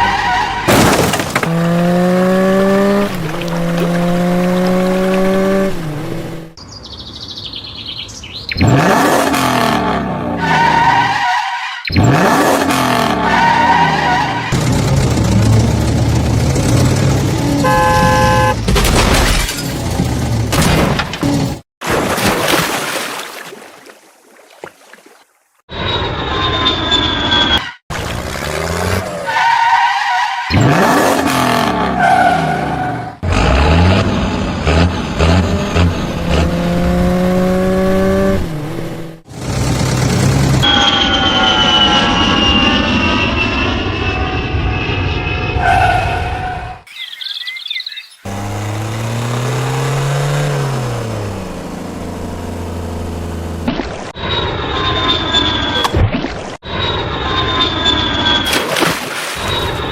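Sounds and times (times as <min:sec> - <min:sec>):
motor engines revving: 0:01.4 - 0:06.6, 0:08.5 - 0:11.2, 0:11.8 - 0:18.7, 0:27.9 - 0:46.9, 0:47.9 - 0:53.7.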